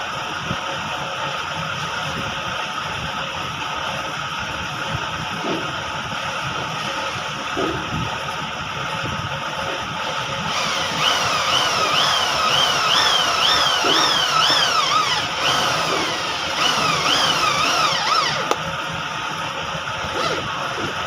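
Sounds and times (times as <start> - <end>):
power tool motor whining: 10.0 - 18.6, 20.0 - 20.8.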